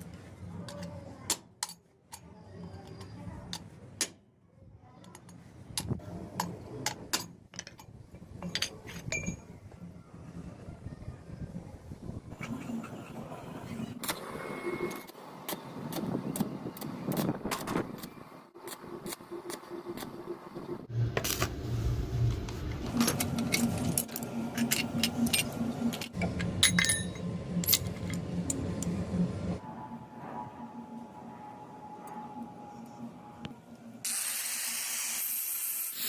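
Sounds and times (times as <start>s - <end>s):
machine humming with crackling clicks: 13.7s - 29.6s, 30.2s - 34.1s
small metal parts clinking: 23.1s - 28.2s.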